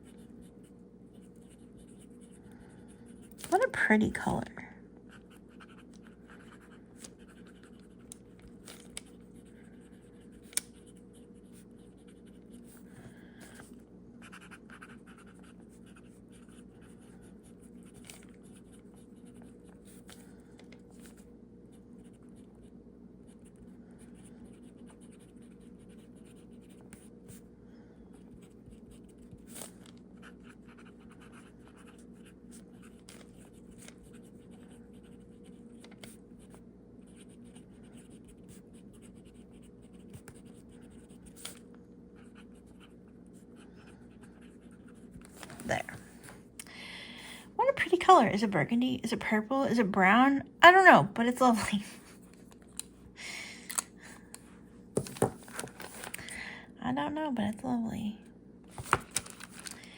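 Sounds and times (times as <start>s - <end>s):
pen scratching on paper: 0.0s - 2.4s, 5.1s - 8.0s, 9.0s - 12.8s, 14.2s - 20.2s, 24.1s - 27.1s, 30.2s - 41.6s.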